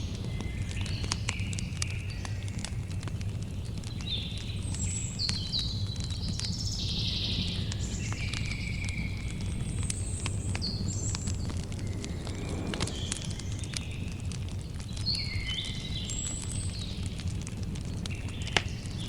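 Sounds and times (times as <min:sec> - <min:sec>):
campfire crackling and popping: 0:00.0 - 0:19.0
low rumble of flames: 0:00.0 - 0:19.0
birds chirping: 0:04.2 - 0:16.9.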